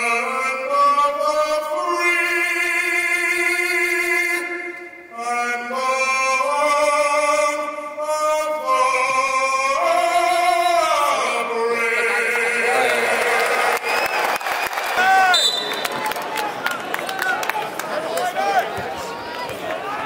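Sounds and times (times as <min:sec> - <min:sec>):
man singing: 0:00.0 - 0:13.8
crowd cheering: 0:12.0 - 0:20.0.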